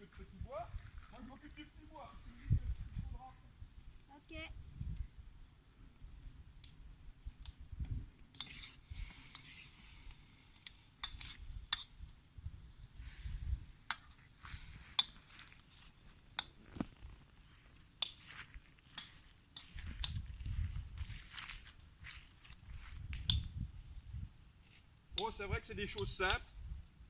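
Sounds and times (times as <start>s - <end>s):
sharp clicks and pops: 6.4s - 8.5s, 10.6s - 12.0s, 16.3s - 17.2s, 18.0s - 18.3s, 18.9s - 20.6s, 23.0s - 23.5s
utensil scraping wok: 8.3s - 10.0s.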